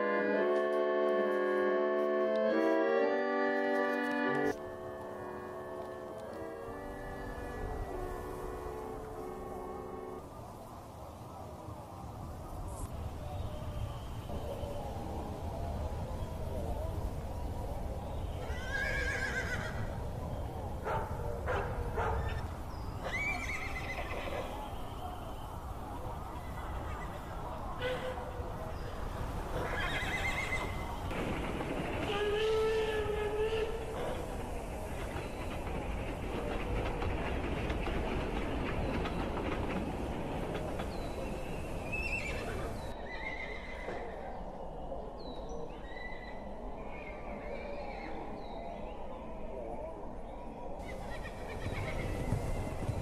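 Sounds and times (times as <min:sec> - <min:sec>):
hooves and wheels clattering: 0:00.0 - 0:44.4, 0:50.7 - 0:53.0
low background noise: 0:00.0 - 0:53.0
horse whinnying: 0:18.4 - 0:19.9, 0:23.0 - 0:24.5, 0:29.6 - 0:30.8
horses whinnying: 0:18.4 - 0:20.0, 0:22.2 - 0:24.6, 0:29.5 - 0:30.9, 0:42.0 - 0:44.2, 0:50.8 - 0:53.0.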